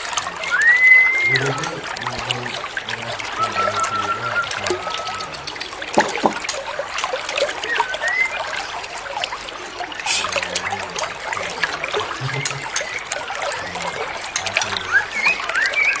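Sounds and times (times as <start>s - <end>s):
stream water trickling: 0.0s - 16.0s
birds chirping: 0.1s - 6.6s, 7.5s - 8.8s, 9.6s - 16.0s
rising bird whistle: 0.5s - 1.5s, 3.4s - 5.5s, 7.7s - 8.4s, 14.9s - 16.0s.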